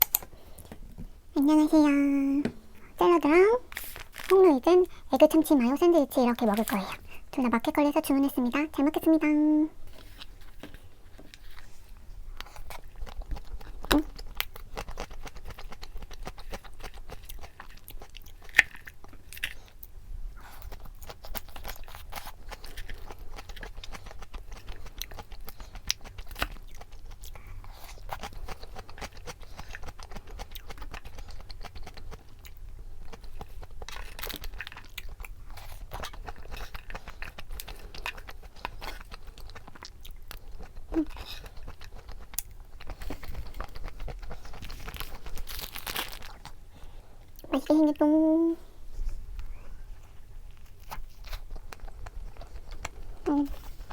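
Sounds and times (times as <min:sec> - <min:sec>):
person chewing crunchy food: 0:10.0 - 0:47.5, 0:49.4 - 0:53.9.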